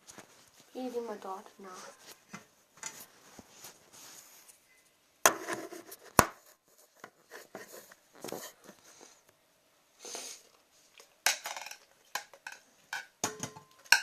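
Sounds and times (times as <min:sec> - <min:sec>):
scraping and rustling handling noises: 0:00.0 - 0:09.3.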